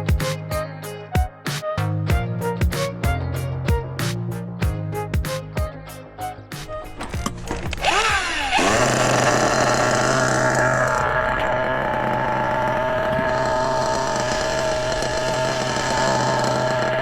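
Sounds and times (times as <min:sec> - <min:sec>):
small model engine droning: 0:06.9 - 0:17.0.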